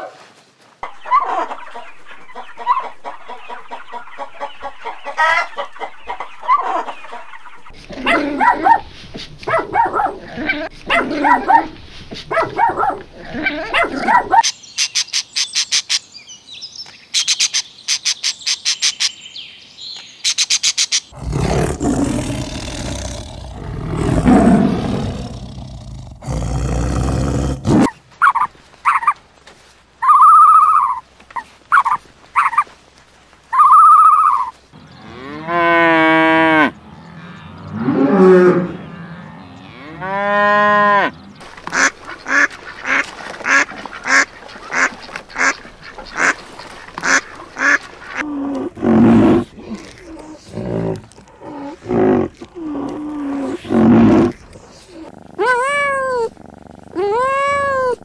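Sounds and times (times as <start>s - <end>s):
dogs barking: 0.8s - 14.4s
tiger roaring: 21.2s - 27.9s, 48.2s - 58.0s
cow mooing: 34.8s - 41.3s.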